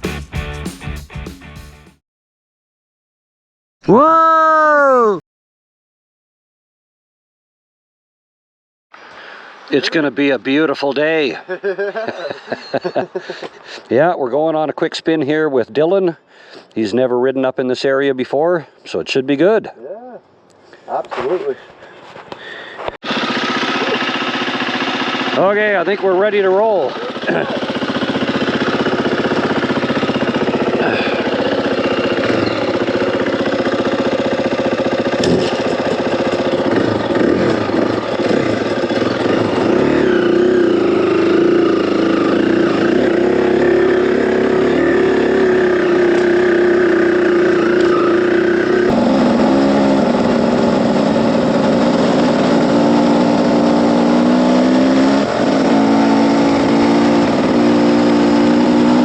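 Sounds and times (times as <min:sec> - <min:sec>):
dirt bike engine revving: 0:23.0 - 0:59.0.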